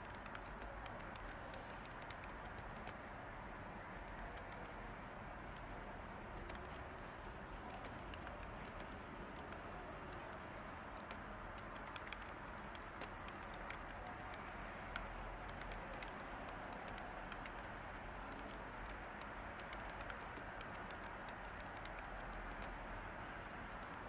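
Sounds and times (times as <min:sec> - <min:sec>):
keyboard typing: 0:00.0 - 0:03.0, 0:03.9 - 0:04.8, 0:06.4 - 0:22.8, 0:23.7 - 0:24.0
white noise hiss: 0:00.0 - 0:24.0.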